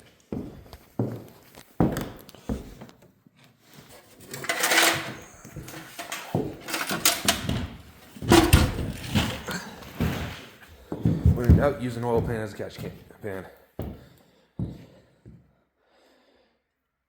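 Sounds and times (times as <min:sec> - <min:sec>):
metal engine parts clunking: 0:04.2 - 0:09.6.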